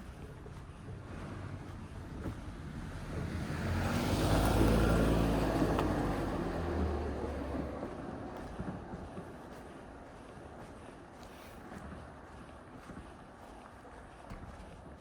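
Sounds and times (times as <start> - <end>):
car passing: 2.4 - 8.9.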